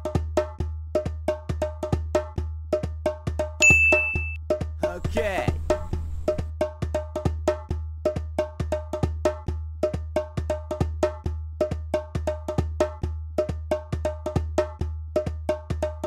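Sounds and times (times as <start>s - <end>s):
wood block taps beat: 3.6s - 6.5s
low pulsing bass: 5.0s - 6.5s.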